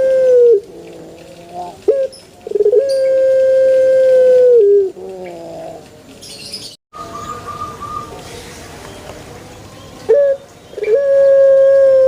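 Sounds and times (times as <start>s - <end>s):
dove cooing: 0.0s - 6.0s, 10.1s - 12.0s.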